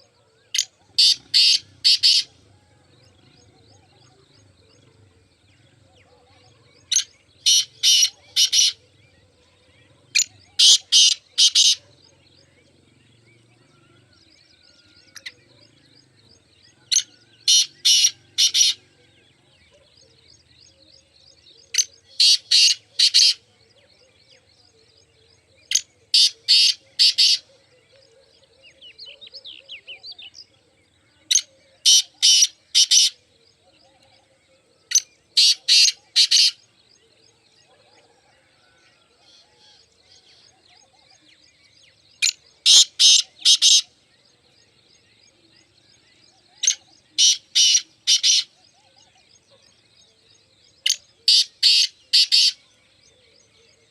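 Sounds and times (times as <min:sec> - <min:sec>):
small birds chirping: 0:00.0 - 0:53.9
bird calling with harsh notes: 0:00.5 - 0:02.4, 0:06.9 - 0:08.9, 0:10.2 - 0:11.8, 0:16.9 - 0:18.9, 0:22.2 - 0:23.4, 0:25.7 - 0:27.5, 0:31.4 - 0:33.2, 0:34.9 - 0:36.6, 0:42.2 - 0:44.0, 0:46.6 - 0:48.6, 0:50.8 - 0:52.6.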